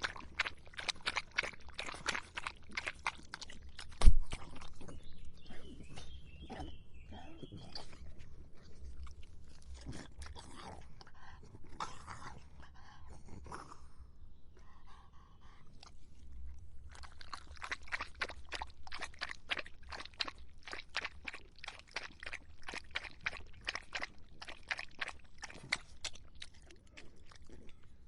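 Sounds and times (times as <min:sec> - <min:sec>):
dog lapping water: 0:00.0 - 0:06.8, 0:15.8 - 0:28.0.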